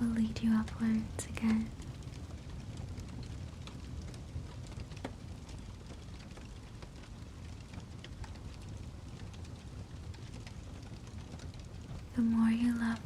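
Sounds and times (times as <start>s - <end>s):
fire crackling and popping: 0.0s - 13.0s
low steady fire rumble: 0.0s - 13.0s.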